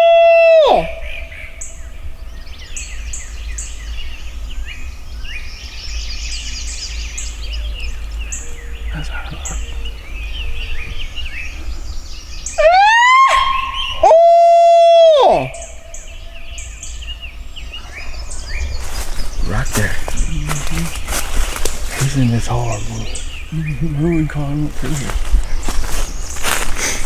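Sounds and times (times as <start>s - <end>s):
loud long pitched call: 0.0s - 1.6s, 12.6s - 16.7s
wind rumble on microphone: 0.0s - 12.8s, 13.6s - 27.0s
songbirds chirping and singing: 0.0s - 27.0s.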